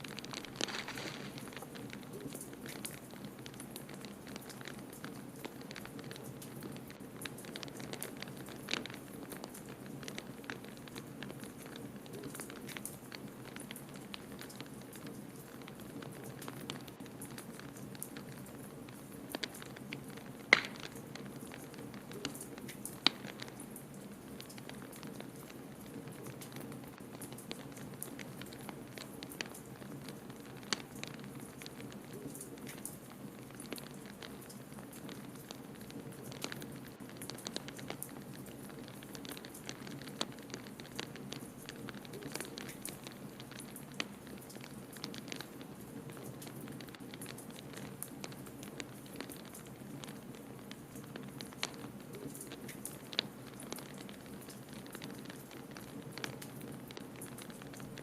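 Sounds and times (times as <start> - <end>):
loud fire cracks: 0.0 - 2.0
wood fire crackling: 0.0 - 58.0.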